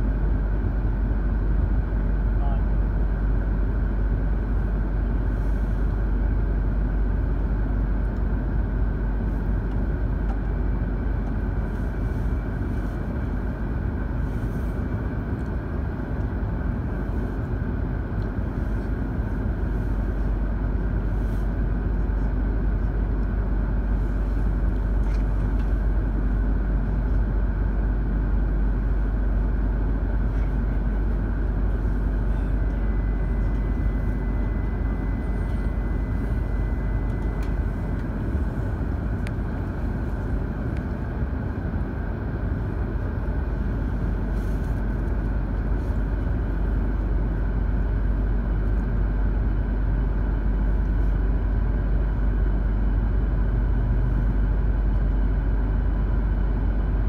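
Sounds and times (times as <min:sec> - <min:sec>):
train cabin rumble and hum: 0:00.0 - 0:57.0.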